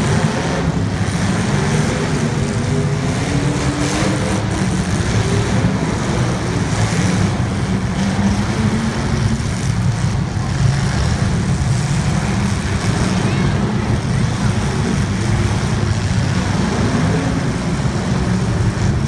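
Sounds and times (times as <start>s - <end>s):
race car engines running: 0.0s - 19.0s.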